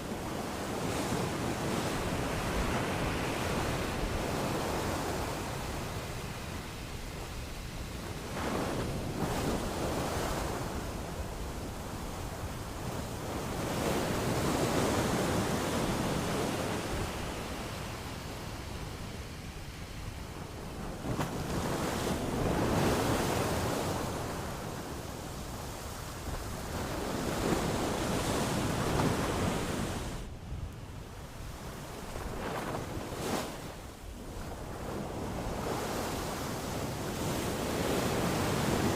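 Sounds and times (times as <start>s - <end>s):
ocean waves breaking on beach: 0.0s - 38.9s.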